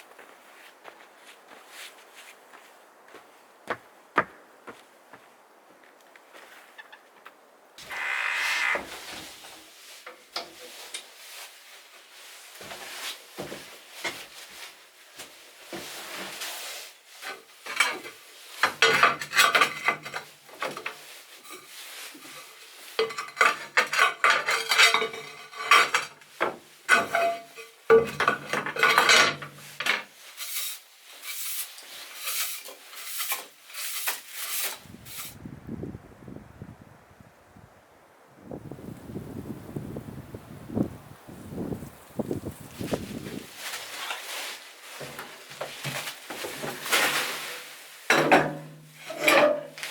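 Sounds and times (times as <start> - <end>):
metal cookware clattering: 17.7 - 21.6, 23.0 - 26.1, 26.9 - 30.0, 48.1 - 49.9.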